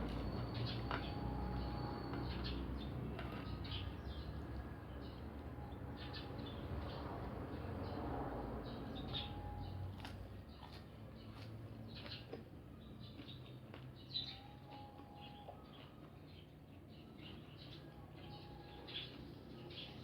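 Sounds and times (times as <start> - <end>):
crunchy chewing: 10.0 - 16.4.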